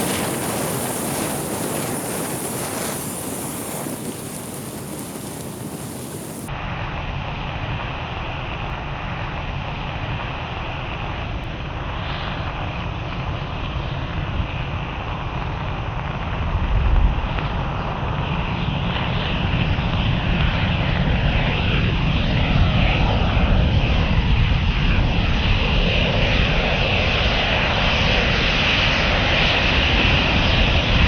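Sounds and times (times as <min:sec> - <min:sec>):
burning matches roaring: 0:00.0 - 0:06.5.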